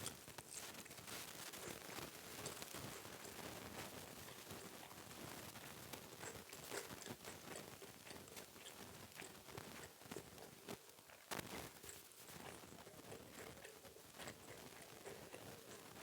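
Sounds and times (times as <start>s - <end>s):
chewing: 0.0s - 16.0s.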